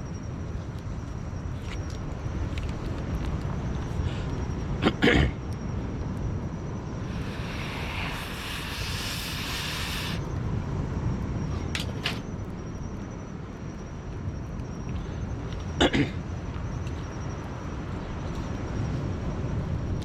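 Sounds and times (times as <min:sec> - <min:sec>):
steady low rumble: 0:06.0 - 0:11.4
hiss: 0:07.0 - 0:10.3.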